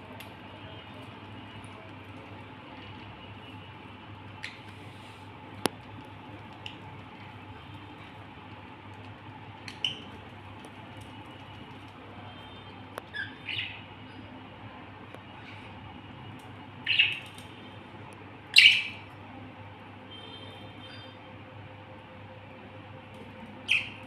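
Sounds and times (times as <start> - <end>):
budgerigar chirps: 18.6 - 19.0.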